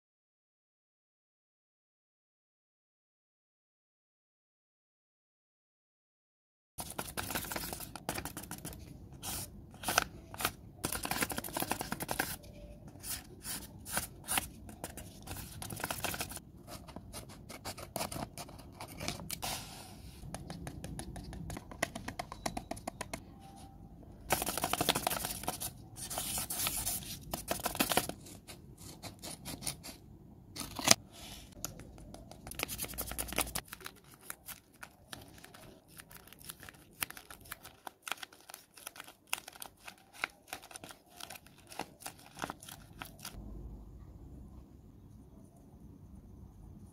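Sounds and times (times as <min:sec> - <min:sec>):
paper crinkling and rustling: 0:06.8 - 0:19.5, 0:24.3 - 0:29.8, 0:30.6 - 0:43.4.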